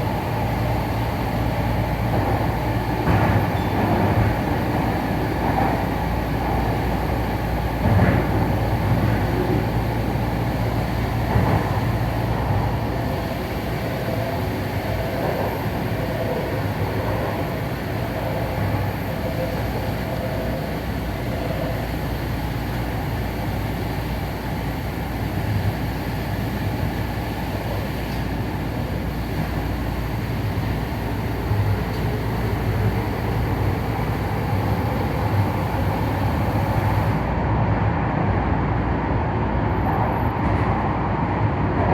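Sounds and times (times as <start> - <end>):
train wheels rumbling on rail: 0.0 - 41.9.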